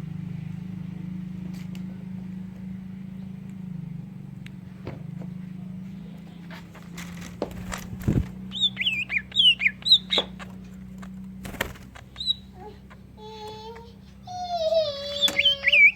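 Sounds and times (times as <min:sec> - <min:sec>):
low hum: 0:00.0 - 0:15.7
bird whistling song: 0:08.1 - 0:10.6, 0:12.1 - 0:12.6, 0:14.9 - 0:15.9.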